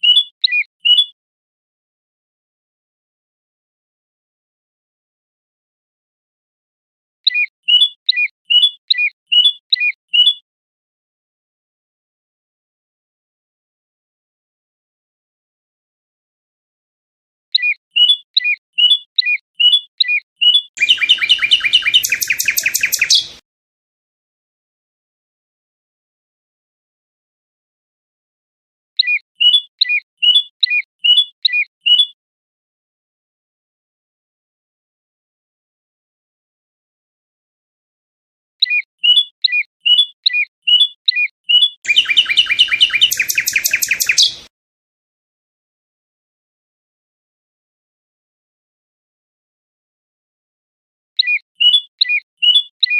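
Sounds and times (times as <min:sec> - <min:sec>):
fast bird trill: 0:00.0 - 0:01.1, 0:07.3 - 0:10.4, 0:17.6 - 0:23.4, 0:29.0 - 0:32.2, 0:38.6 - 0:44.5, 0:51.2 - 0:52.9
songbird singing: 0:00.0 - 0:01.2, 0:07.3 - 0:10.4, 0:17.5 - 0:23.4, 0:29.0 - 0:32.2, 0:38.6 - 0:44.5, 0:51.2 - 0:52.9.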